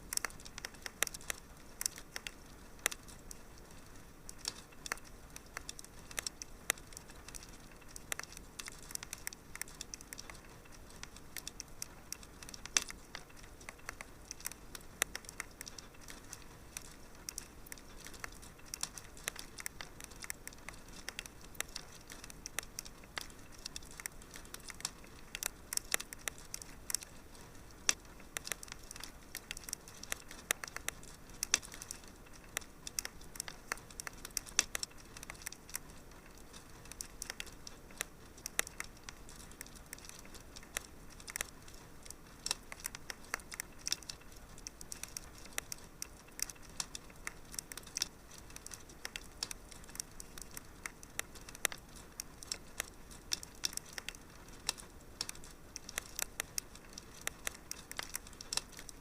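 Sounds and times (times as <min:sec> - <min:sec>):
soft steady hiss: 0:00.0 - 0:59.0
wood fire crackling and popping: 0:00.0 - 0:59.0.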